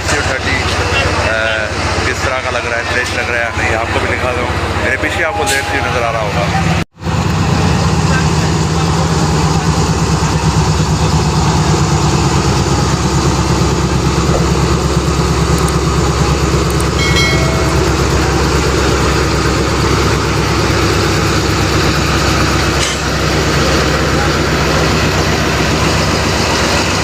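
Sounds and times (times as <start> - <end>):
diesel locomotive engine idling: 0.0 - 27.0
brief high-pitched tone: 16.9 - 19.2.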